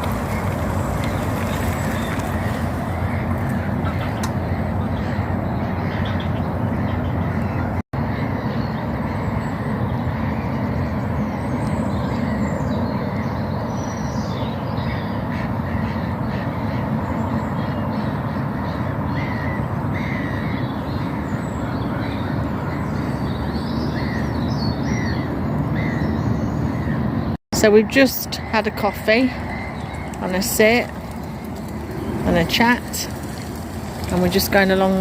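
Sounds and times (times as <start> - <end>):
small birds chirping: 0.0 - 7.7, 28.2 - 35.0
crows cawing: 19.1 - 21.3
low rumble: 29.4 - 35.0.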